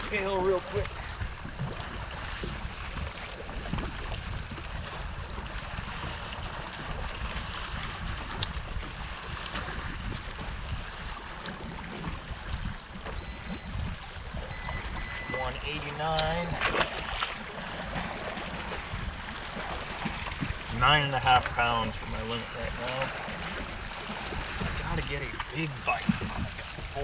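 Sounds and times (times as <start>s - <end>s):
water lapping against hull: 0.0s - 27.0s
wind on microphone: 0.0s - 27.0s
faint high beep: 13.2s - 13.8s, 14.5s - 15.6s.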